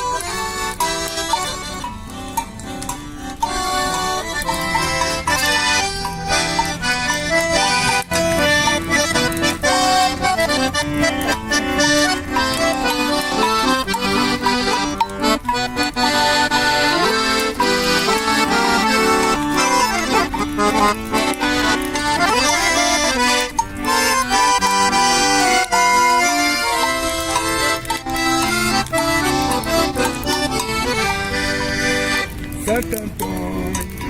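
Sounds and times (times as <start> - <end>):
accordion playing lively melody: 0.0 - 34.0
light percussion: 0.0 - 34.0.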